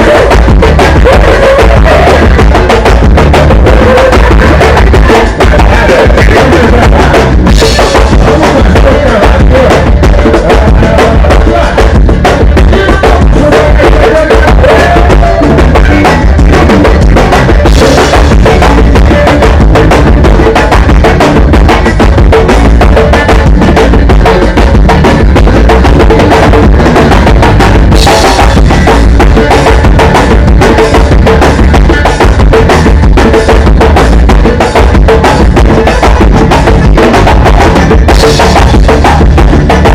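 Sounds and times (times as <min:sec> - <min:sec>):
drum kit hits: 0:00.0 - 0:39.9
live band music: 0:00.0 - 0:39.9.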